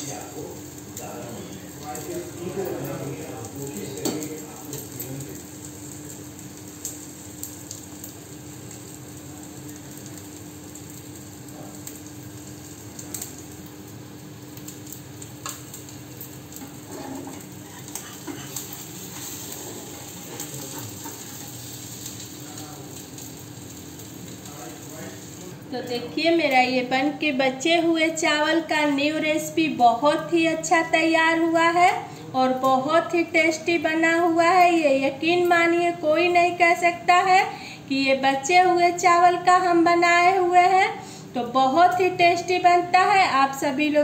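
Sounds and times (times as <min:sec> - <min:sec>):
oil sizzling in a pan: 0:00.0 - 0:43.8
metal spatula scraping a pan: 0:16.6 - 0:21.6.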